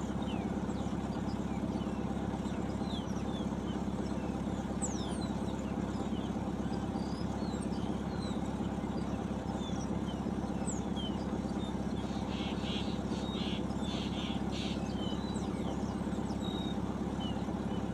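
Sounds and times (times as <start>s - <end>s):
engine idling: 0.0s - 17.9s
high bird chirps: 9.1s - 17.9s
rasping bird calls: 10.7s - 17.9s.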